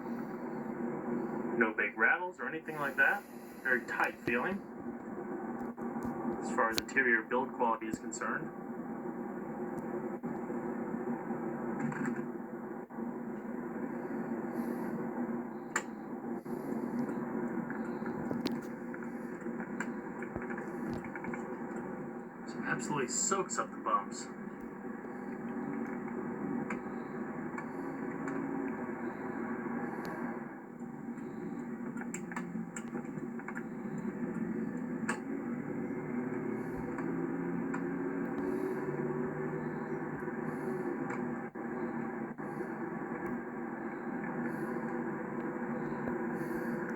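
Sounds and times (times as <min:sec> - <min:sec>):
car engine and road drone: 0:08.2 - 0:46.9
car road and engine noise: 0:30.7 - 0:43.5.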